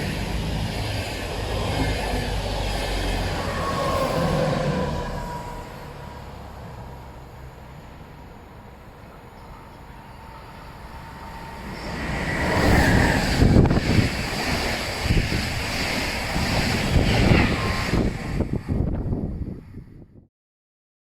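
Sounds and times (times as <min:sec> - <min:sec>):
train passing with rushing roar: 0:00.0 - 0:20.1
wind buffeting microphone: 0:11.4 - 0:20.3.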